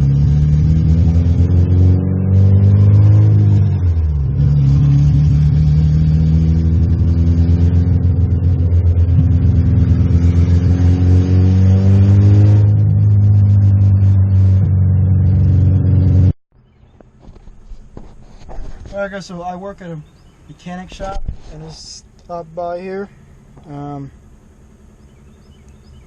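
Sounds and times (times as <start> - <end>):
car engine under load: 0.0 - 26.0.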